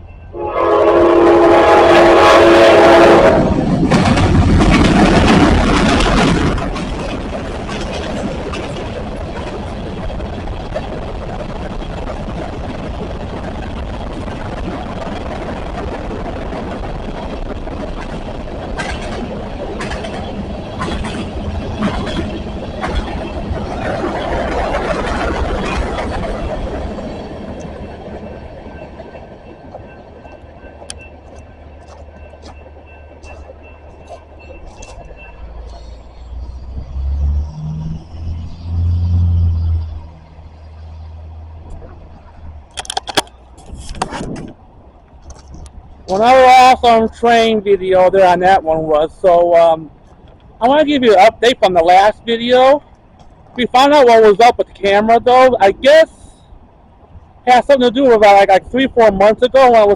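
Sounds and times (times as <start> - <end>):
freight train passing: 0.0 - 59.9.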